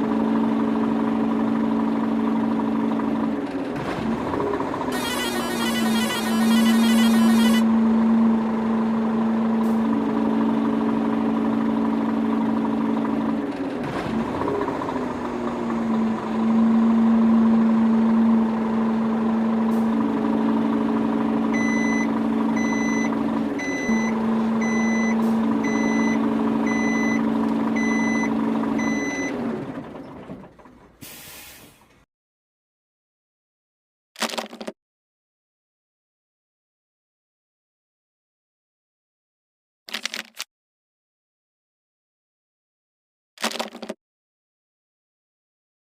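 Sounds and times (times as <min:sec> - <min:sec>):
small electric motors whining: 0:04.9 - 0:07.6
reversing alarm beeping: 0:04.9 - 0:07.7, 0:21.5 - 0:29.4.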